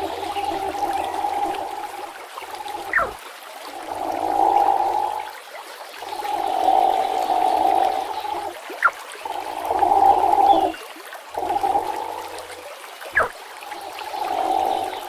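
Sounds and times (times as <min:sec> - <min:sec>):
platypus calls: 0:00.0 - 0:03.2
river water rushing and gurgling: 0:00.0 - 0:15.0.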